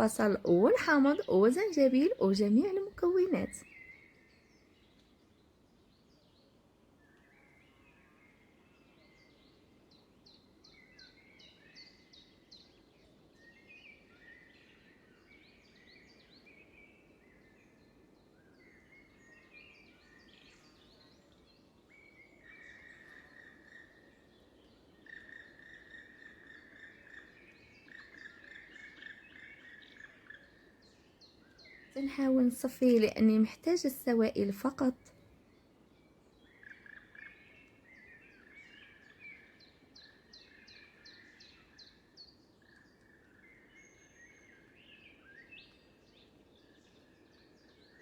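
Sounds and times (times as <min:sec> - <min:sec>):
birdsong chirps and trills: 0:00.0 - 0:48.0
low background hum: 0:32.0 - 0:35.2.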